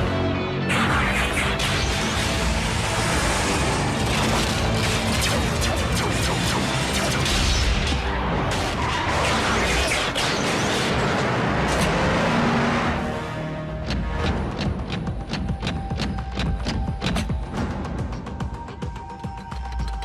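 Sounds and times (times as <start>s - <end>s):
action score music: 0.0s - 20.0s.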